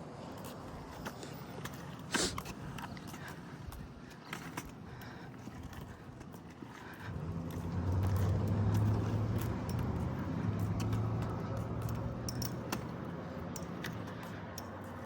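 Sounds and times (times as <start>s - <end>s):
vehicle passing by: 6.9s - 15.0s.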